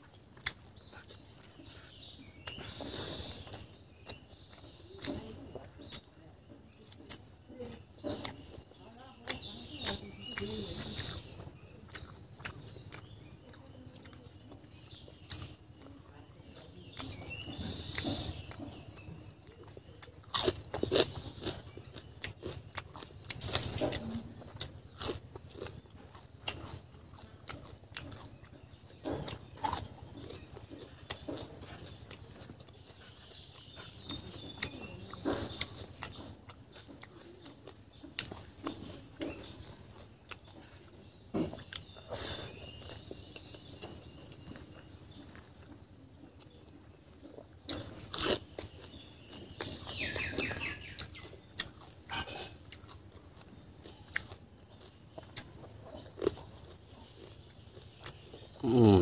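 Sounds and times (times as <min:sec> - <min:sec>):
chewing: 0:00.0 - 0:59.0
lip smacking: 0:49.6 - 0:59.0.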